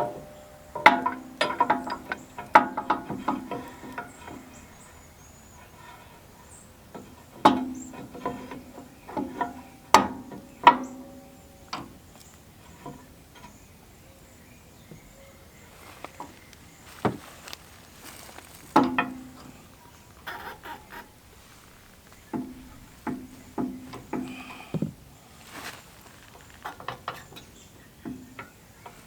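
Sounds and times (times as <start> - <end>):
metal parts clanking: 0.0 - 4.9.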